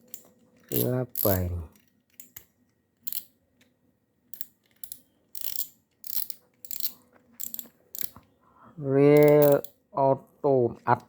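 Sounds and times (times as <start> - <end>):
fishing reel ratcheting clicks: 0.0 - 1.5, 4.4 - 8.1, 9.2 - 9.7.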